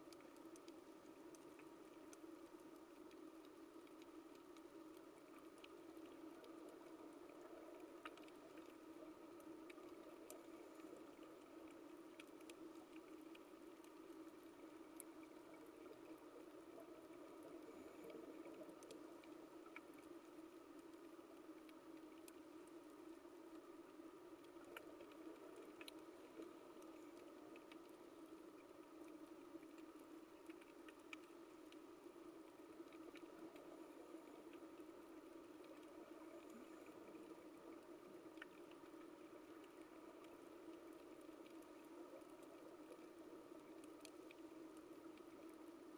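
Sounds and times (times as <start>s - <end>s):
low underwater hiss: 0.0s - 45.9s
sharp underwater clicks: 24.4s - 45.9s.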